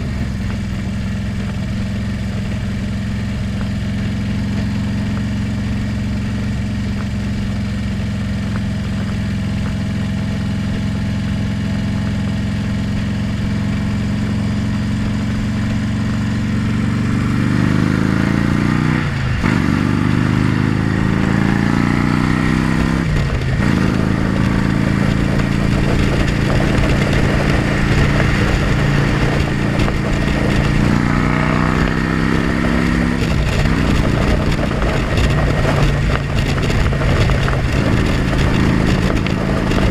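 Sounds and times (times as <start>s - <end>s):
motorcycle engine accelerating: 0.0s - 39.9s
wind rush on microphone: 13.0s - 39.9s.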